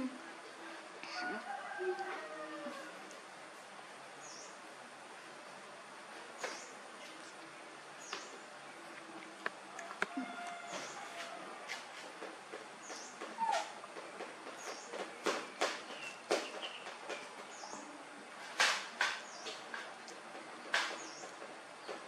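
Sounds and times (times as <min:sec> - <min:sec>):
small birds chirping: 0:04.2 - 0:04.7, 0:06.4 - 0:09.2, 0:12.8 - 0:18.0, 0:19.2 - 0:19.8, 0:20.6 - 0:22.0.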